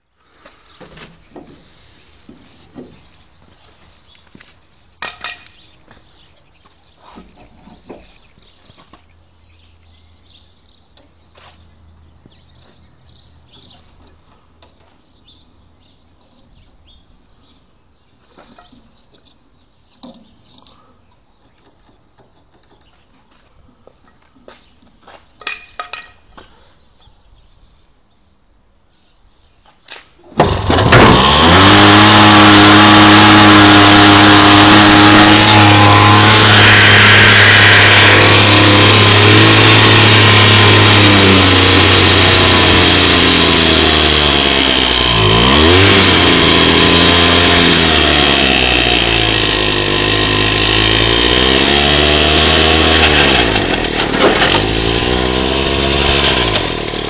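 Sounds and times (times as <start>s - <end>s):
two-stroke engine running: 30.4s - 57.0s.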